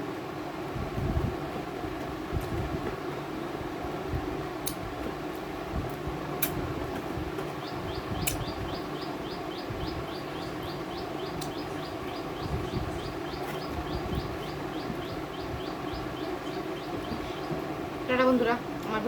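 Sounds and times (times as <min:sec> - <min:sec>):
steady background hum: 0:00.0 - 0:19.0
bird chirping: 0:07.4 - 0:19.0.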